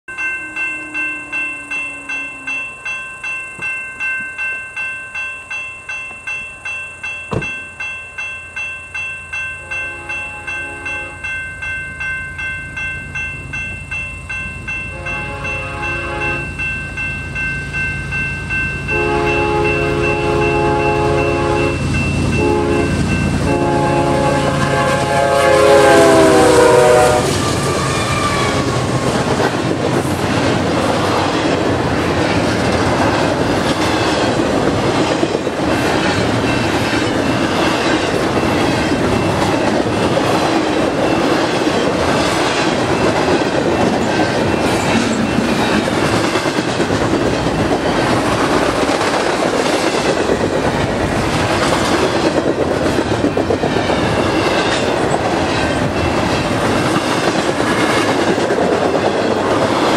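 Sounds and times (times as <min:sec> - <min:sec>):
crossing bell ringing: 0:00.1 - 0:59.9
freight train rumbling past: 0:08.6 - 0:59.9
locomotive horn blasts: 0:09.6 - 0:11.2, 0:14.9 - 0:16.5, 0:18.9 - 0:28.9.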